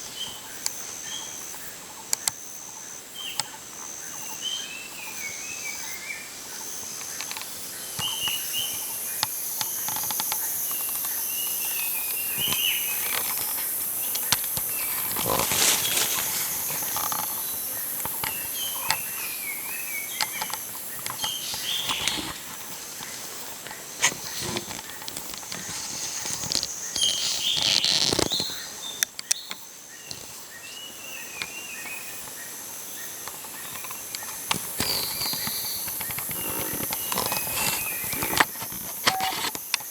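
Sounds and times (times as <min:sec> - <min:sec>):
high insect drone: 0:00.0 - 0:39.9
pulsing insect call: 0:00.0 - 0:39.9
birds chirping: 0:03.1 - 0:39.5
clicks and rustles: 0:12.0 - 0:19.1, 0:19.7 - 0:30.3, 0:33.2 - 0:39.9.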